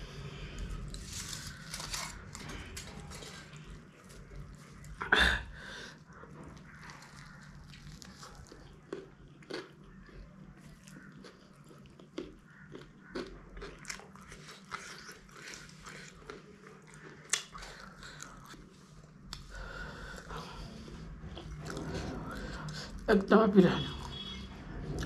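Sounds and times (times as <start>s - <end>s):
person chewing food: 6.0s - 23.1s.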